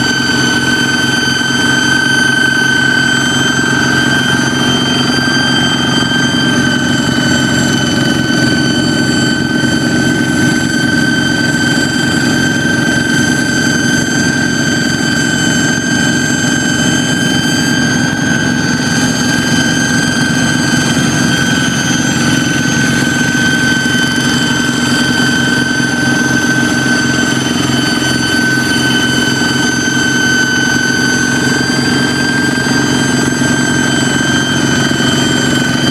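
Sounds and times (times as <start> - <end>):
diesel engine chugging: 0.0 - 35.9
high-pitched engine whistle: 0.0 - 35.9.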